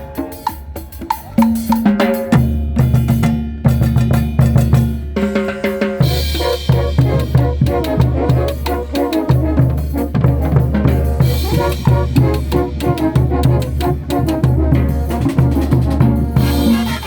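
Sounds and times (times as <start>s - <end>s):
brass band playing: 0.0s - 3.2s, 3.9s - 17.0s
bass drum and snare beat: 0.0s - 17.0s.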